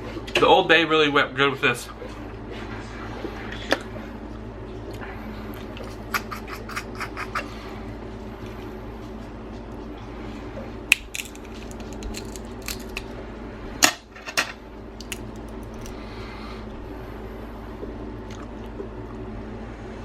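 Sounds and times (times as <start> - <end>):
low hum: 1.2 - 20.0
crab shells cracking: 10.9 - 13.1, 15.0 - 16.0.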